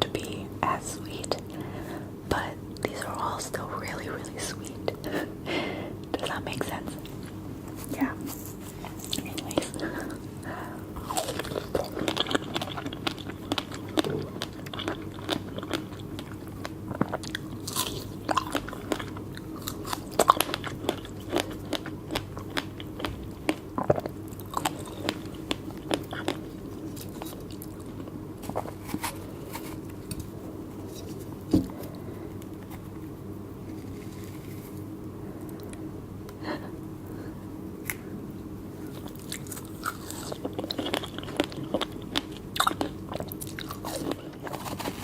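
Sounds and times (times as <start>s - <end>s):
biting and chewing fruit: 6.0s - 34.9s, 38.8s - 45.0s.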